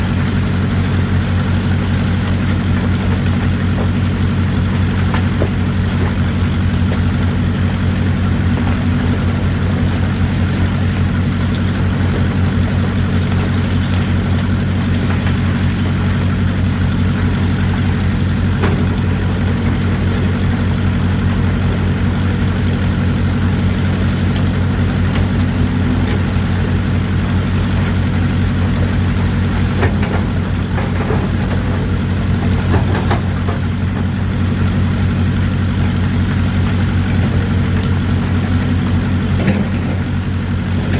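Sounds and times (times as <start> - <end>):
running water hissing: 0.0 - 32.7
diesel engine running: 0.0 - 40.9.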